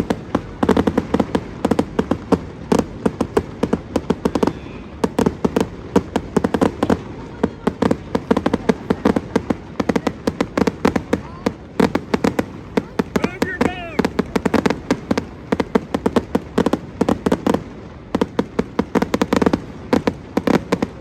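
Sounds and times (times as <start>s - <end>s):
fireworks popping and banging: 0.0s - 21.0s.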